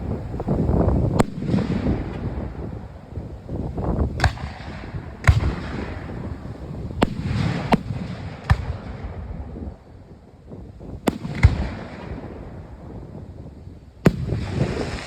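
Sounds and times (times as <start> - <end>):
fireworks bangs: 0.0 - 9.4, 11.1 - 12.6, 14.1 - 15.0.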